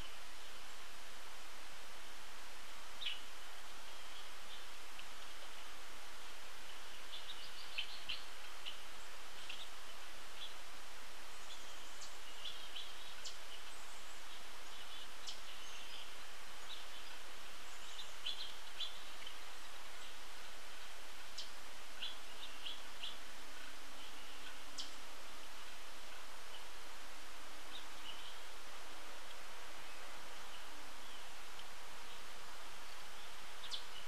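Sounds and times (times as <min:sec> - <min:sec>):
steady outdoor hiss: 0:00.0 - 0:34.0.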